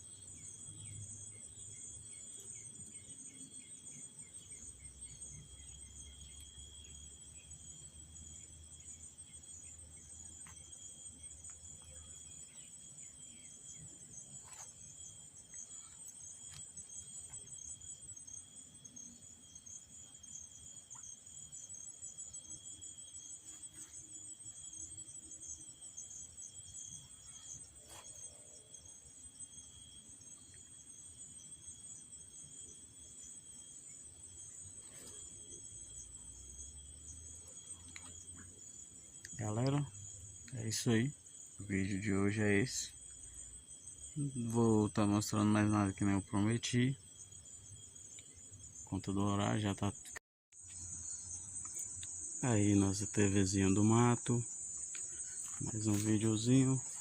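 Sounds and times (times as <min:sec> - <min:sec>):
crickets and insects trilling: 0:00.0 - 0:57.0.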